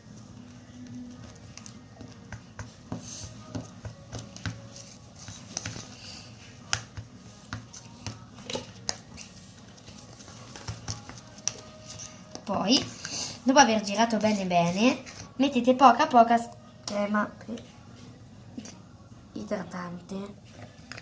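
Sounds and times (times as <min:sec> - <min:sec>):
spoon stirring sticky mix: 0:00.0 - 0:15.5, 0:20.3 - 0:21.0.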